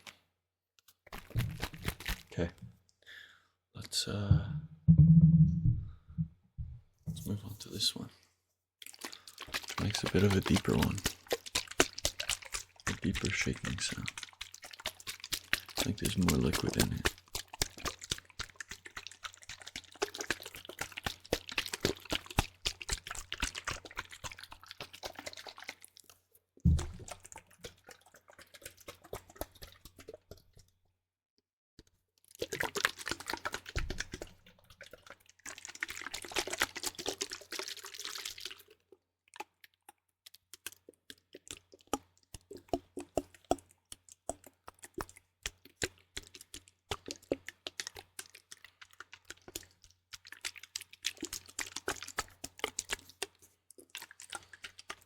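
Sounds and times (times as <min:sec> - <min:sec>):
liquid sloshing in a shaken bottle: 0:00.9 - 0:02.7, 0:08.8 - 0:30.8, 0:31.8 - 0:55.0
low thump: 0:04.3 - 0:07.2.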